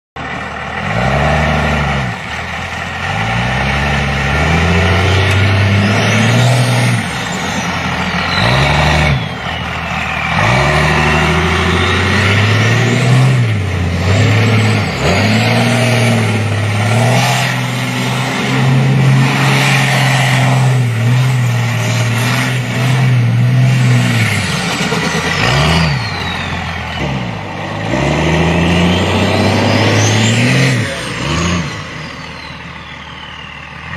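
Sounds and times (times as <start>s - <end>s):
car engine revving hard: 0.8s - 2.3s, 3.0s - 32.2s
turbo whistle: 5.0s - 13.3s, 24.5s - 33.9s.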